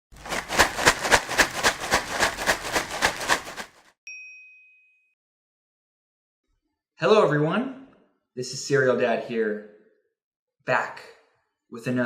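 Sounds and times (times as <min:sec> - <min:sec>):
rapid sharp hits: 0:00.2 - 0:03.8
bright ding: 0:04.1 - 0:05.2.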